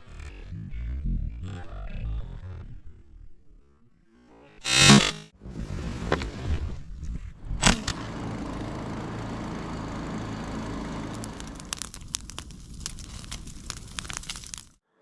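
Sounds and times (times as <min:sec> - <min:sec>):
engine running: 0:07.6 - 0:14.2
sharp crackles and clicks: 0:11.1 - 0:14.8.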